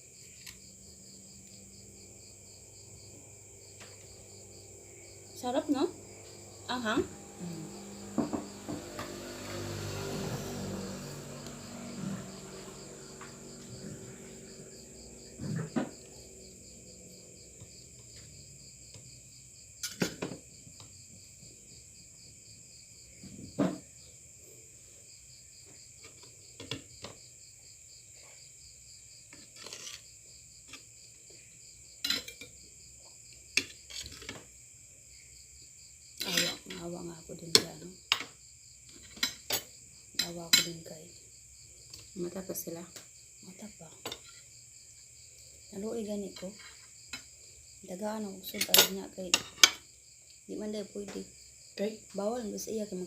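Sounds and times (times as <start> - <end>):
crickets chirping: 0.0 - 53.0
cutlery clinking on plate: 32.1 - 32.5.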